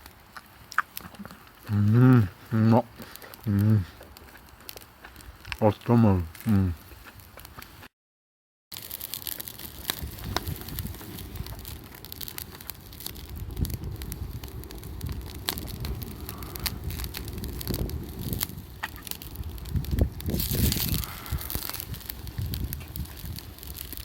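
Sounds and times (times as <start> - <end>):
campfire crackling: 0.0 - 7.9, 8.7 - 24.0.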